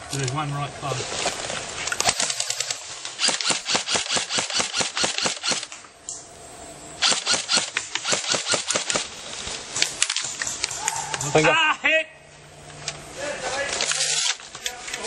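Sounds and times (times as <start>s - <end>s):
airsoft gun rapid fire: 2.0s - 5.8s, 7.0s - 9.2s.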